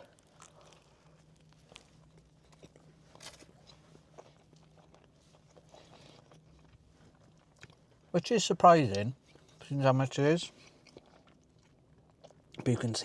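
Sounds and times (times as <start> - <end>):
chewing food: 0.0 - 13.0.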